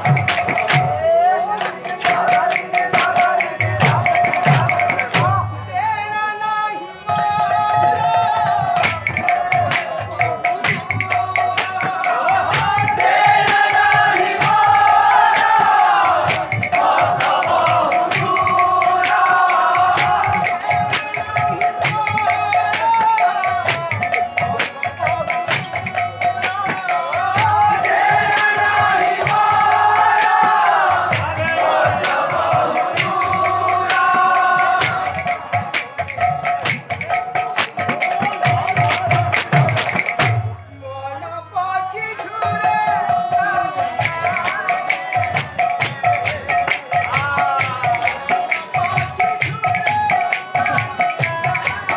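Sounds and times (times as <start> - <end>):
hand cymbals struck in a beat: 0.0 - 6.0, 7.0 - 40.6, 42.2 - 51.9
drum strokes: 8.5 - 40.6.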